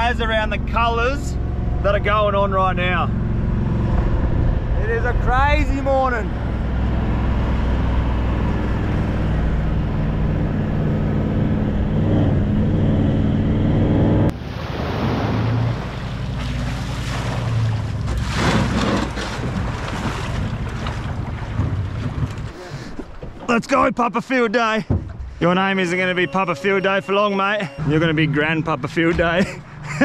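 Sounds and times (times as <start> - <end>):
vehicle engine running: 0.0 - 14.3
water at shoreline: 14.3 - 24.0, 24.6 - 30.0
wind buffeting microphone: 17.3 - 23.5.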